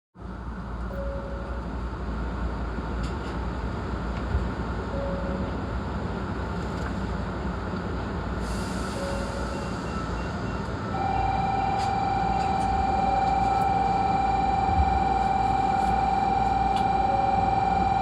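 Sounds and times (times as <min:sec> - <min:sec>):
train low rumble: 0:00.2 - 0:18.0
steady high whine: 0:10.8 - 0:18.0.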